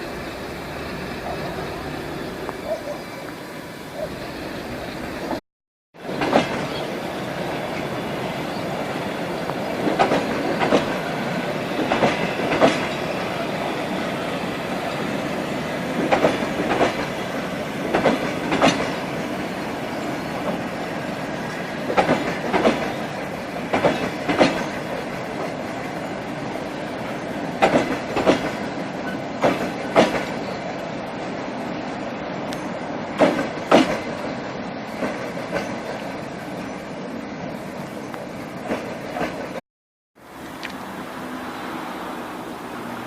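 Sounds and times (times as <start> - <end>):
rumble of train carriages: 6.0 - 39.6
train wheels clacking over rail joint: 6.1 - 6.8, 9.5 - 13.6, 16.0 - 17.2, 17.8 - 19.2, 21.5 - 23.1, 23.7 - 25.6, 27.6 - 30.4, 33.2 - 34.2, 35.0 - 36.0.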